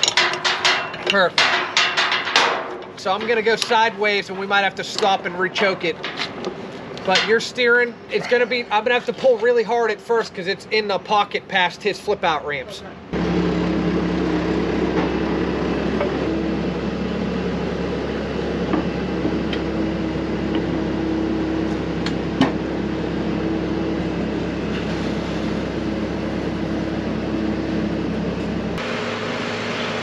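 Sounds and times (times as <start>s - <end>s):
sharp metallic knocks: 0.0s - 4.2s, 4.9s - 7.6s
loader engine under load: 12.9s - 30.0s.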